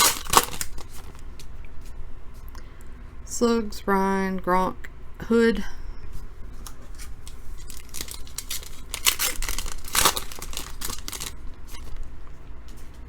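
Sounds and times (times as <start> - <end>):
foil wrapper tearing and crinkling: 0.0 - 1.2, 7.0 - 11.9.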